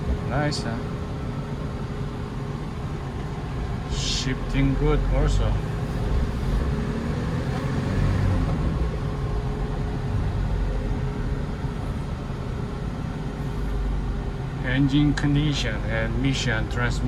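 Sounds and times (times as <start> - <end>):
faint steady hum: 0.0 - 6.6
road rumble: 0.0 - 17.0
truck engine drone: 0.0 - 17.0.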